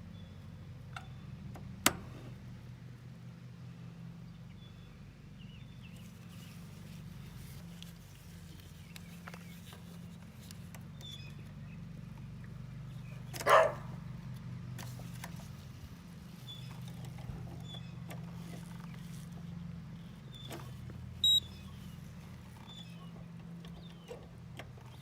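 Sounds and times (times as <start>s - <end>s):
dog bark: 13.4s - 14.0s.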